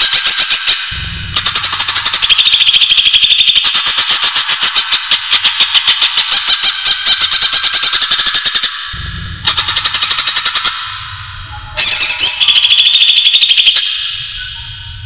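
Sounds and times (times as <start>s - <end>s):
low hum: 0.9s - 1.9s, 8.9s - 9.8s, 10.8s - 11.8s, 14.0s - 15.0s
bird chattering trills: 11.8s - 14.6s.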